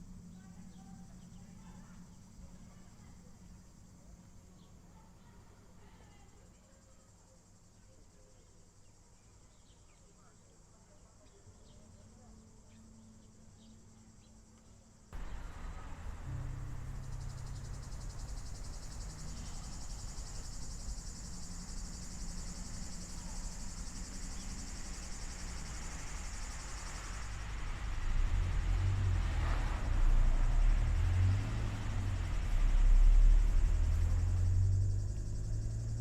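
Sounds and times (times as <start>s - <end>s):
insects chirring: 0.0s - 36.0s
low rumble: 15.2s - 36.0s.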